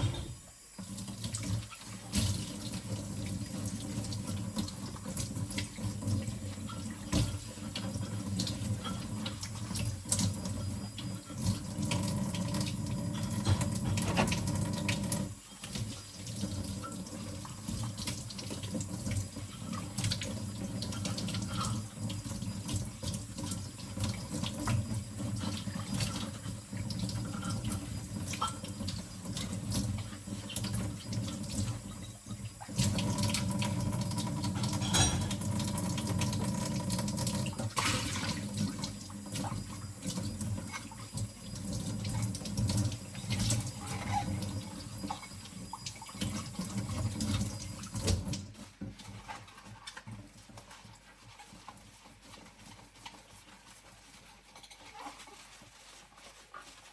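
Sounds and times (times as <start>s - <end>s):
tap running into a sink: 0.0s - 53.3s
bowls clinking together: 34.6s - 35.7s.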